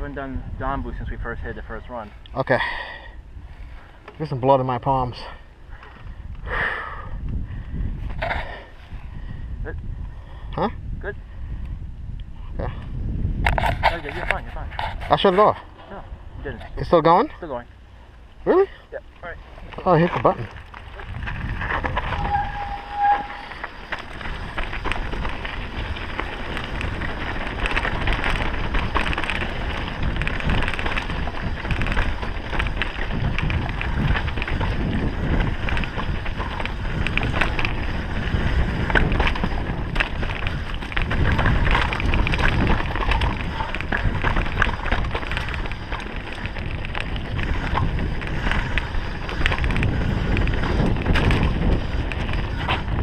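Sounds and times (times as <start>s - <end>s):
wind rushing over microphone: 0.0s - 2.3s, 5.0s - 18.0s, 19.3s - 53.0s
bike clattering over trail: 19.2s - 53.0s.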